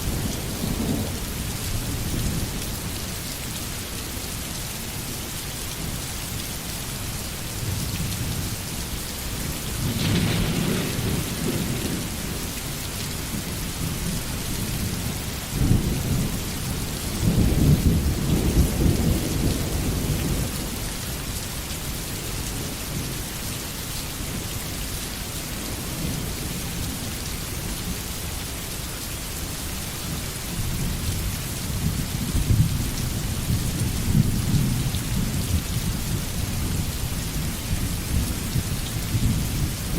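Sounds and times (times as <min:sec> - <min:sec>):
rain hissing: 0:07.6 - 0:19.3
sharp thunder crack: 0:09.8 - 0:12.2
rolling thunder: 0:09.8 - 0:12.5.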